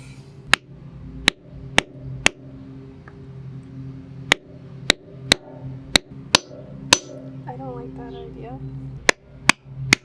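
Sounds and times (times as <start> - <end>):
geode being struck: 4.3 - 7.5.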